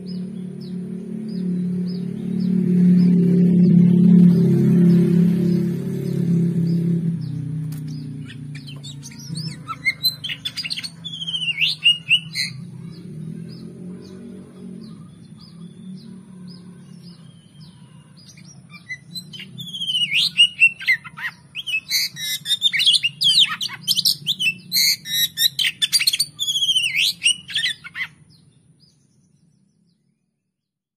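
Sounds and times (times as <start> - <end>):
bird whistling and chattering: 8.2 - 13.0, 18.2 - 28.2.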